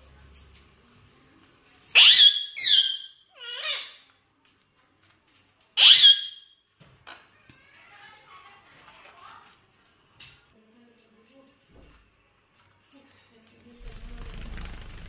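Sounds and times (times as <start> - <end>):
parrot screeching: 1.9 - 4.1, 5.8 - 7.2.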